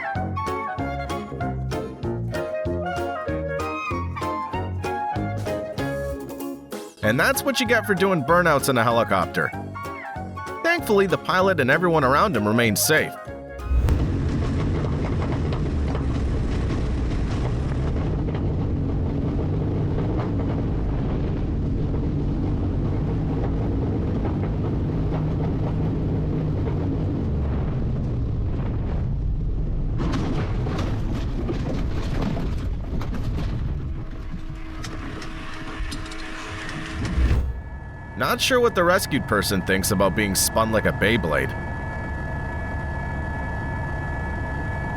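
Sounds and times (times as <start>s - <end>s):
helicopter rotor and engine rumble: 13.2s - 28.0s, 34.6s - 44.9s.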